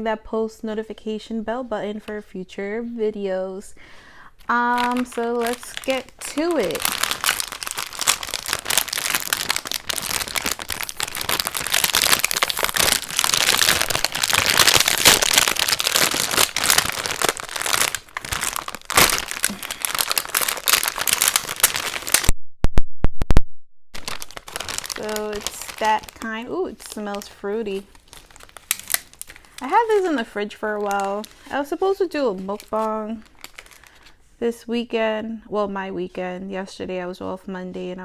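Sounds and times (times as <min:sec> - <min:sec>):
plastic packaging crinkling: 0:04.4 - 0:22.3, 0:24.0 - 0:34.2.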